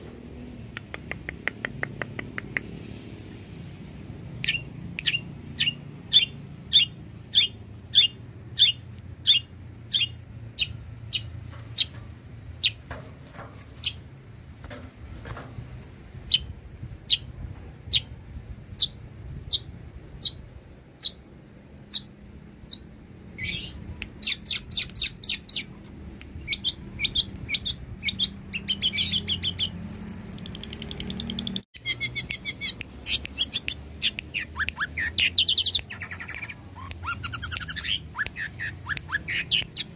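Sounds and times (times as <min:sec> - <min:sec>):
bird chattering trills: 0:26.4 - 0:39.9.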